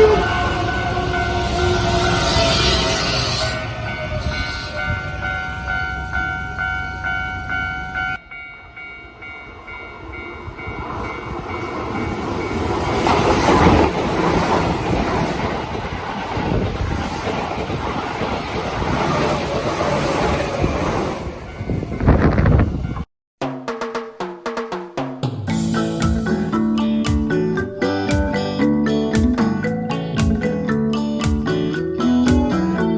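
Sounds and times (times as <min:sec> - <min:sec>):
electric train passing: 0:00.0 - 0:23.1, 0:25.5 - 0:32.9
level-crossing warning bell ringing: 0:00.0 - 0:23.1.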